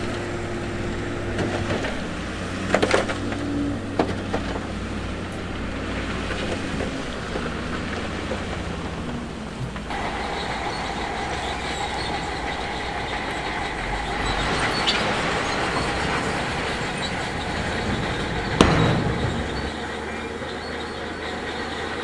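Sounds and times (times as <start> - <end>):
bulldozer engine running: 0.0 - 22.0
steel tracks grinding squeal: 9.9 - 22.0
loud metal clank: 13.4 - 21.2.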